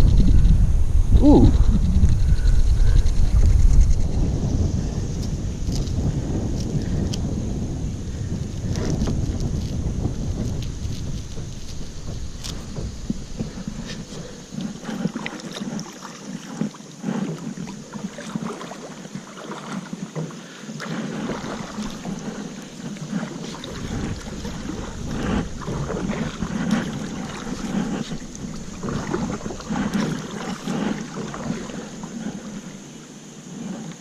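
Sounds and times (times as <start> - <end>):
wind buffeting microphone: 0.0 - 20.0, 20.9 - 34.0
water slapping against kayak hull: 8.1 - 34.0.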